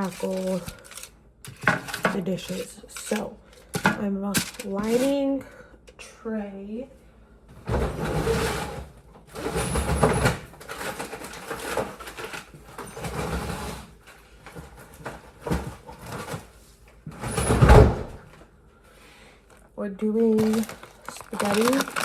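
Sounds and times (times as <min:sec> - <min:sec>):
liner sheet tearing and crinkling: 0:00.0 - 0:03.2, 0:04.4 - 0:05.2, 0:20.3 - 0:22.0.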